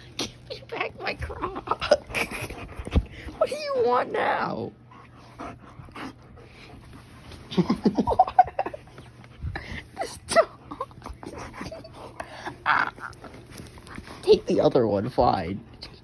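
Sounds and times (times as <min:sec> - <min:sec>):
dog growling: 0:09.5 - 0:14.6.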